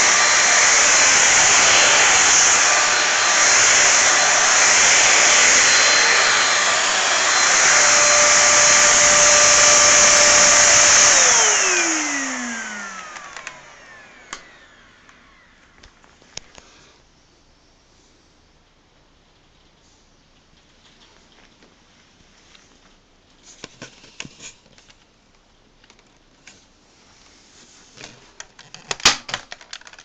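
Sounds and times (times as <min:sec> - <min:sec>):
motor whine winding down: 0:00.0 - 0:15.6
vacuum cleaner running: 0:00.0 - 0:15.9.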